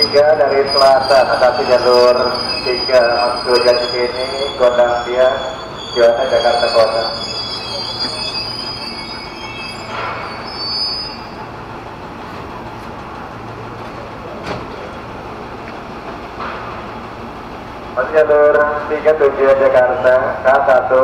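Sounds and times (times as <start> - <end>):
train wheels squealing: 0.0 - 11.7
electric train humming: 0.0 - 21.0
light knocks of train: 13.8 - 15.0, 15.6 - 16.9.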